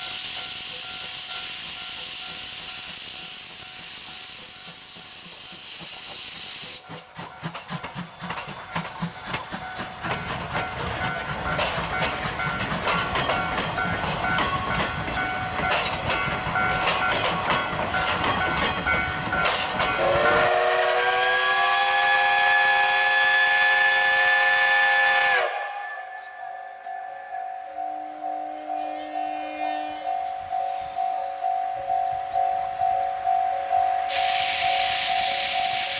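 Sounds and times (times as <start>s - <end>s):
steam hissing: 0.0s - 26.2s, 29.5s - 35.9s
train clattering: 0.0s - 35.9s
steam whistle blast: 20.0s - 26.4s, 29.3s - 30.1s, 34.1s - 35.9s.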